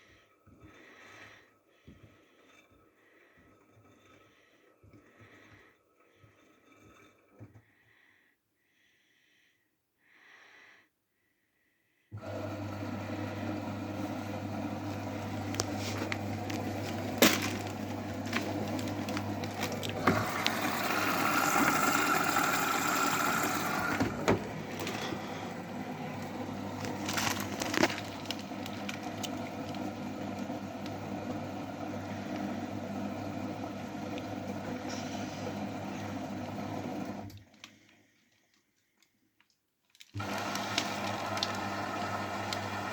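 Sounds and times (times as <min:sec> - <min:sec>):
washing machine hissing: 0:12.2 - 0:37.3
washing machine motor hum: 0:12.2 - 0:37.4, 0:40.2 - 0:42.9.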